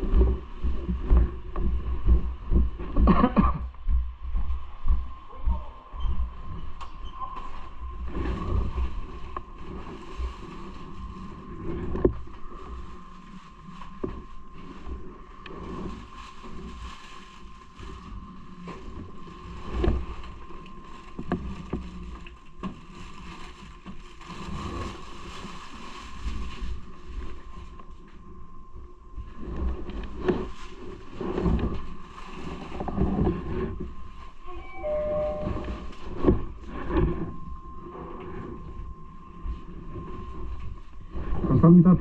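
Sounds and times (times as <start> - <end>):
bike riding rumble: 0.0 - 42.0
steady high whine: 0.0 - 42.0
wind on microphone: 29.2 - 42.0.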